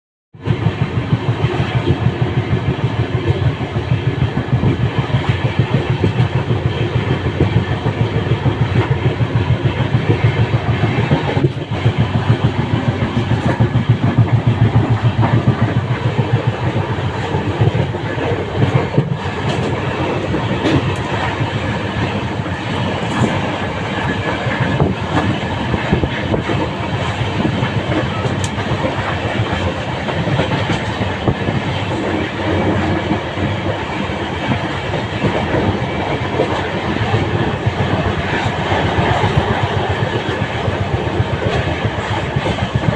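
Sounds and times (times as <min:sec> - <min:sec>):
train wheels clattering on rails: 0:00.4 - 0:42.9.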